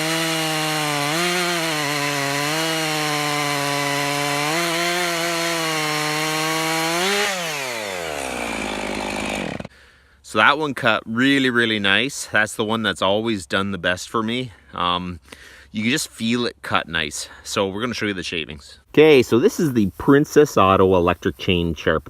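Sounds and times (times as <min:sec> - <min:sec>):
chainsaw cutting wood: 0:00.0 - 0:09.7.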